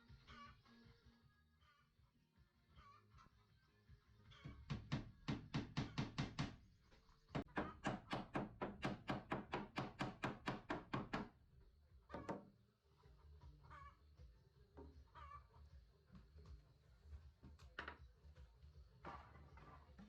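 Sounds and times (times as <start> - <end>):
rapid hammering on wood: 4.7 - 6.6, 7.4 - 11.3.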